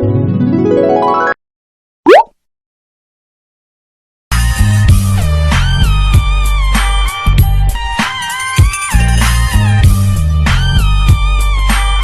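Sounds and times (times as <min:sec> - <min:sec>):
upward pitch sweep: 0:02.1 - 0:02.3.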